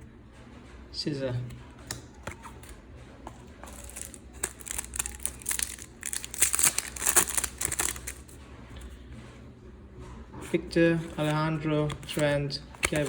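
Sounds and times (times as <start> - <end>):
foil wrapper crinkling: 3.6 - 8.4, 12.8 - 13.0.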